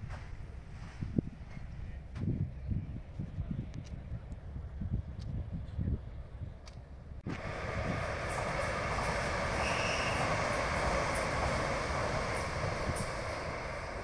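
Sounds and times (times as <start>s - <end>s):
train wheels rushing on rail: 7.2s - 14.0s.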